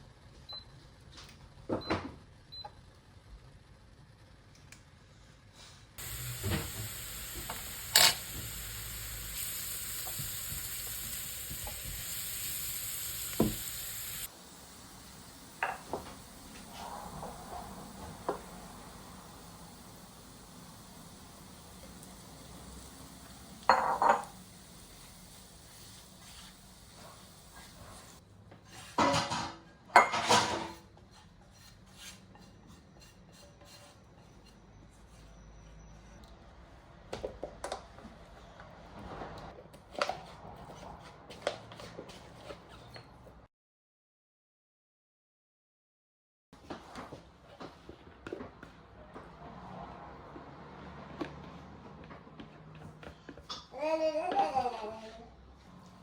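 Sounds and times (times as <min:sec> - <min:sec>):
food sizzling in a pan: 0:06.0 - 0:28.2
kitchenware scraping and clattering: 0:28.6 - 0:34.4.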